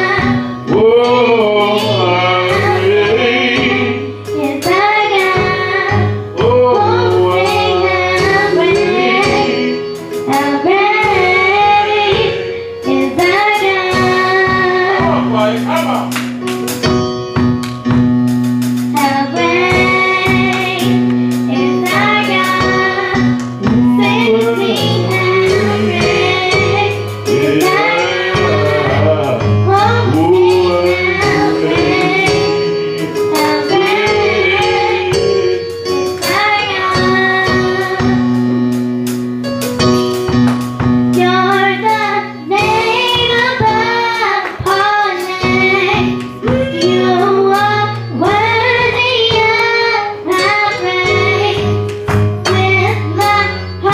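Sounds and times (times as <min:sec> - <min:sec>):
women's choir singing gospel: 0:00.0 - 0:15.2, 0:19.0 - 0:38.3
band accompaniment: 0:00.0 - 0:53.9
percussion hits: 0:00.0 - 0:53.9.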